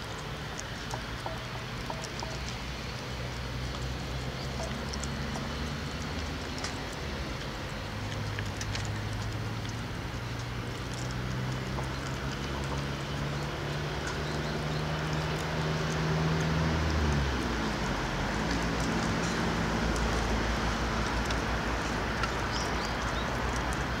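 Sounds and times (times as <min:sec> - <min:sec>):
faint clicks: 0:00.1 - 0:17.8.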